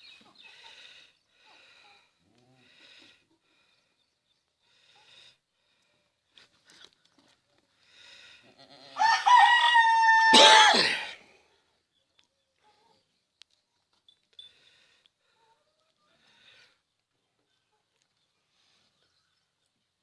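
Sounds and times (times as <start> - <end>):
faint rooster calls: 8.8 - 10.4
rooster crowing loudly: 9.0 - 11.1.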